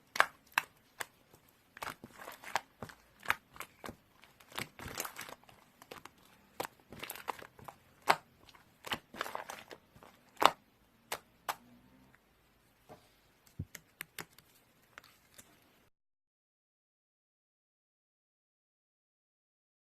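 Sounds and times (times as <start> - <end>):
clicks taps and crinkling: 0.0 - 12.2, 12.8 - 15.7.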